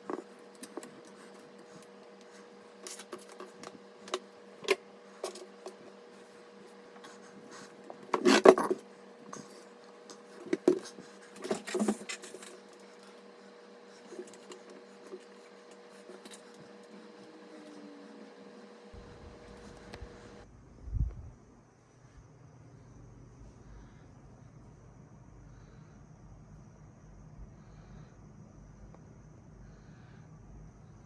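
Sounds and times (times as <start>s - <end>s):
steady hum: 0.0s - 31.0s
computer parts clicking and rubbing: 2.7s - 13.3s.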